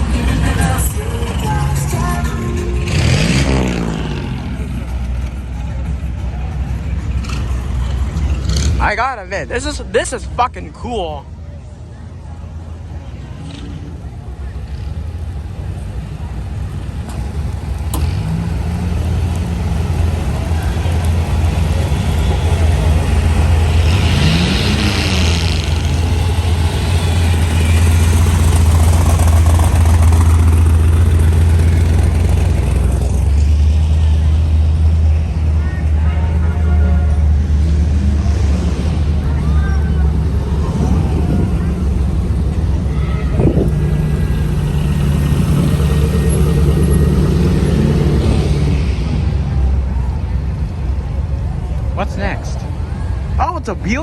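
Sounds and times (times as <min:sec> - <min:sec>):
car engine rumbling and revving: 0:00.0 - 0:53.4.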